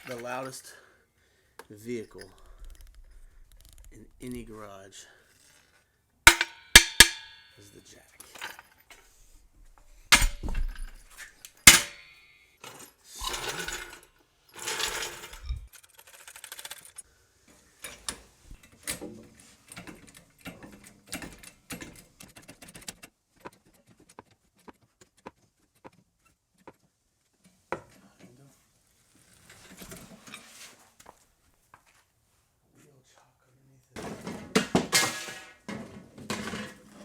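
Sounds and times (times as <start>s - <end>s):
metal floor jack clanking: 6.3s - 7.6s, 9.7s - 12.2s, 13.2s - 14.0s, 14.6s - 15.7s
floor jack rattling as rolled: 10.0s - 17.0s.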